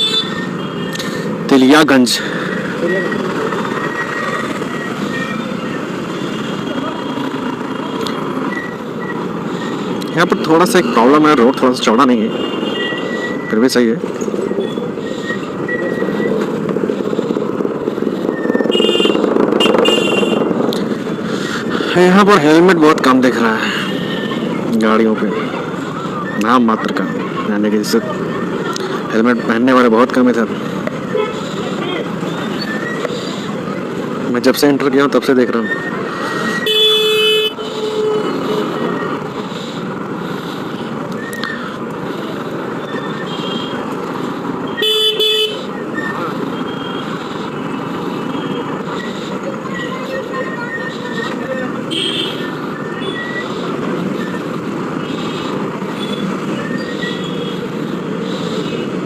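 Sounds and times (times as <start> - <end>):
vehicle horn beeping: 0.0 - 1.0, 12.1 - 13.4, 18.7 - 20.5, 31.1 - 31.5, 36.6 - 38.8, 43.0 - 43.8, 44.7 - 45.7, 51.8 - 52.4
road and engine noise: 0.0 - 59.0.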